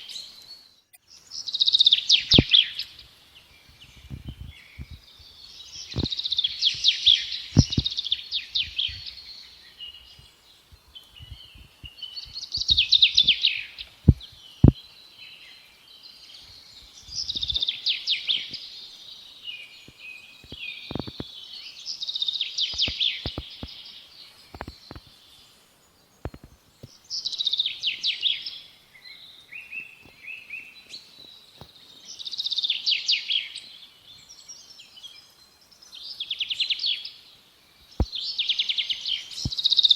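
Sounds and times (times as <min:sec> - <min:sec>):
songbird twittering: 0:00.0 - 0:39.9
sharp clicks: 0:22.7 - 0:23.7.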